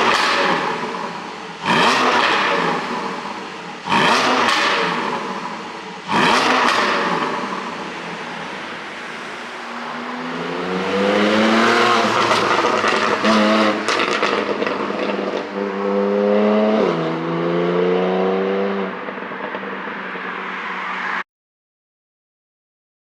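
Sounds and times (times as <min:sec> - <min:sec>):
car engine revving: 0:00.0 - 0:21.2
exhaust crackles and pops: 0:06.1 - 0:08.8, 0:12.0 - 0:15.5.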